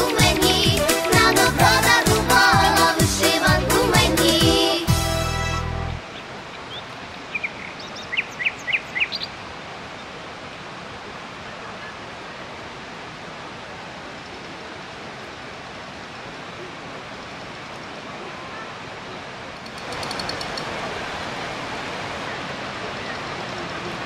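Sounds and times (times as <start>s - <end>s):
waterfall rushing: 0.0s - 24.0s
bird chirping: 6.6s - 9.3s.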